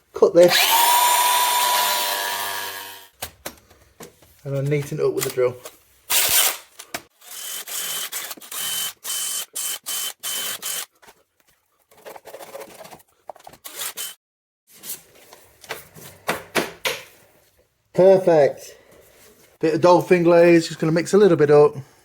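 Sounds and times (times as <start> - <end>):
power drill whining: 0.5 - 3.1, 7.2 - 10.9, 13.6 - 14.2.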